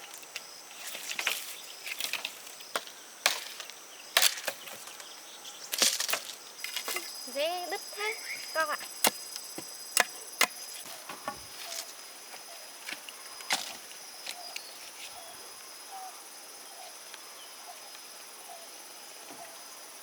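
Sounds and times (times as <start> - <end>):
high insect drone: 0.0 - 20.0
sickle snapping rice stalks: 0.1 - 5.0, 5.7 - 7.1.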